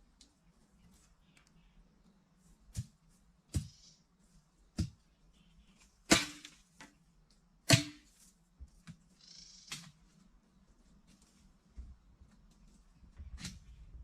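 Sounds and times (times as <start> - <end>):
tool striking bamboo: 6.1 - 6.6, 7.7 - 8.2.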